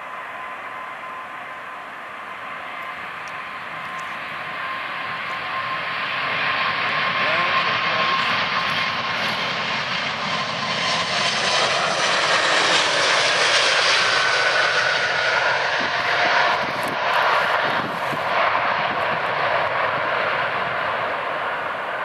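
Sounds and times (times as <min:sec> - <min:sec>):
faint high whine: 0:00.0 - 0:08.6
jet engines roaring: 0:00.0 - 0:22.0.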